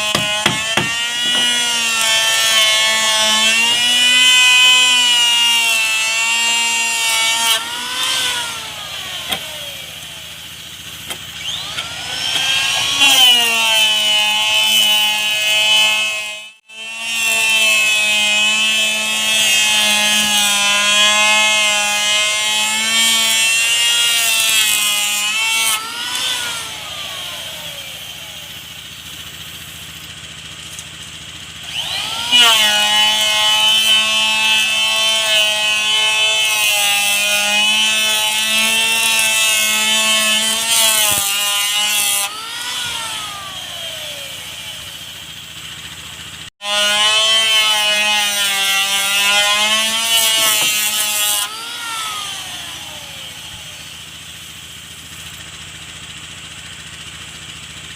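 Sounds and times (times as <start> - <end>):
electric power tool cutting wood: 0.0 - 57.9.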